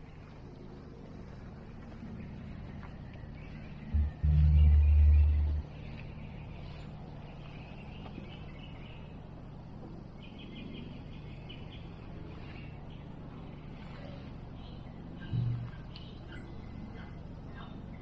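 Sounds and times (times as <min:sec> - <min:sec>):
birds chirping: 0:02.2 - 0:09.3, 0:10.1 - 0:18.0
steady low hum: 0:03.4 - 0:07.9, 0:12.7 - 0:18.0.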